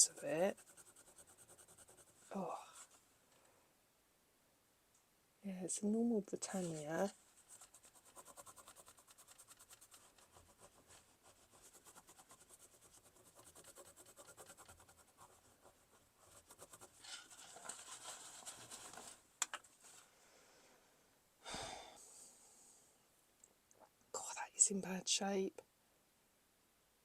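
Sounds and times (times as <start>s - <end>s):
rubbing a coin: 0.0s - 3.0s, 6.6s - 19.2s.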